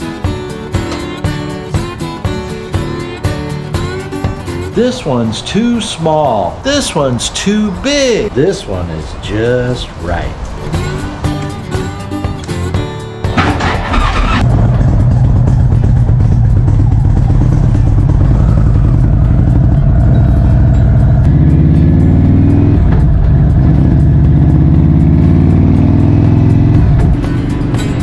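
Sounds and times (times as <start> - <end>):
motorcycle engine accelerating: 10.8 - 28.0.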